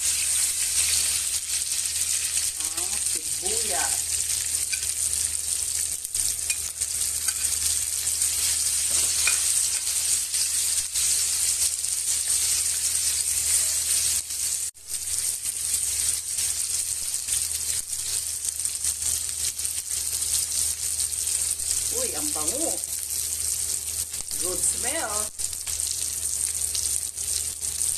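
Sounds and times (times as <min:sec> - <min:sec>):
meat sizzling in oil: 0:00.0 - 0:27.9
spatula stirring: 0:06.1 - 0:14.6.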